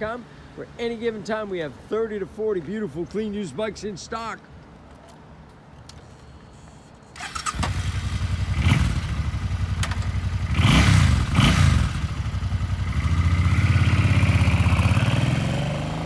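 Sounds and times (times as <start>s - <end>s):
motorcycle engine starting and idling: 7.1s - 16.0s
motorcycle engine revving: 7.2s - 16.0s.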